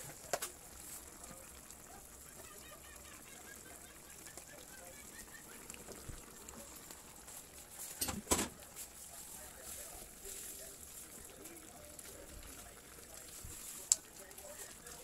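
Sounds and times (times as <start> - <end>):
steady faint hiss: 4.7 - 15.0.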